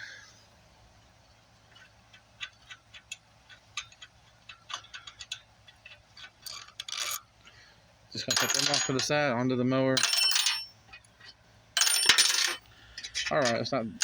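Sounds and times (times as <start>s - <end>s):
wrench clicking on bolts: 1.7s - 7.2s.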